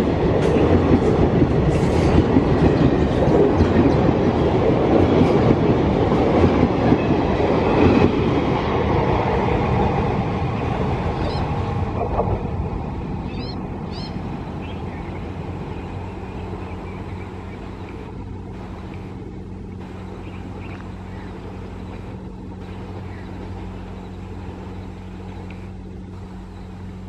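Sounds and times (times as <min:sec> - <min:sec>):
train rumbling on rails: 0:00.0 - 0:27.0
low hum: 0:08.5 - 0:27.0
bird chirping: 0:13.2 - 0:18.0, 0:20.0 - 0:21.5.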